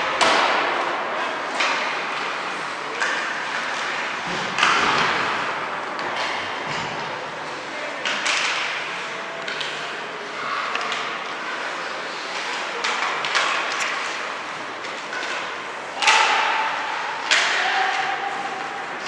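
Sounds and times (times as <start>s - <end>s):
arena noise: 0.0s - 19.0s
puck hitting boards: 0.2s - 7.1s, 8.0s - 9.8s, 12.4s - 19.0s.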